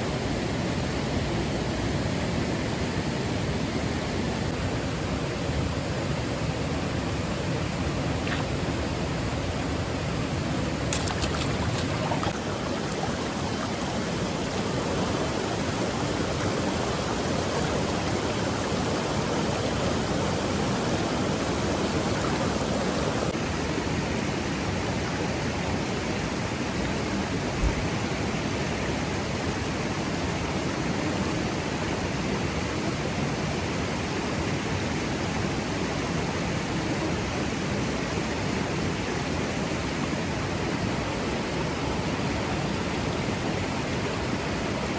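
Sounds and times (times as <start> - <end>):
water rushing: 2.6 - 32.5.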